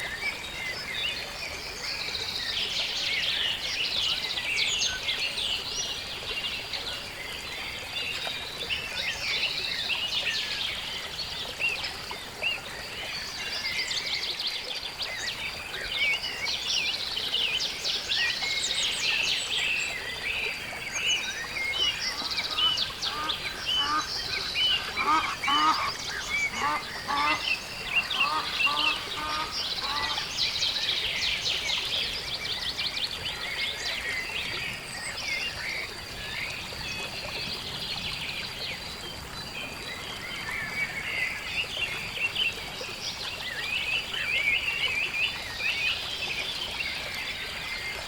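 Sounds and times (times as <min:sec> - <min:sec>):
songbirds chirping and trilling: 0:00.0 - 0:48.0
waterfowl honking: 0:22.1 - 0:24.1, 0:24.8 - 0:27.5, 0:28.1 - 0:30.3.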